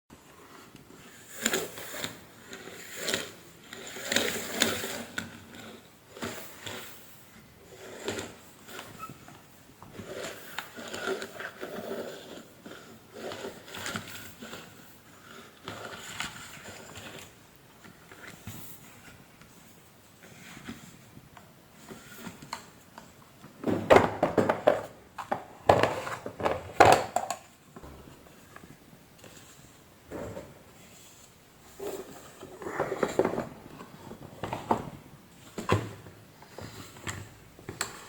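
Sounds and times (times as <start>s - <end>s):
plastic parts knocking and clicking: 22.4s - 29.4s.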